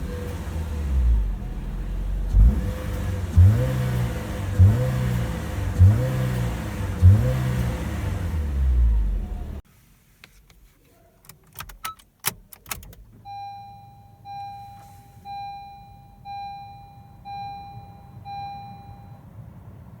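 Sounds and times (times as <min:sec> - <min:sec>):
car engine running: 0:00.0 - 0:09.6
car warning chime: 0:13.2 - 0:19.4.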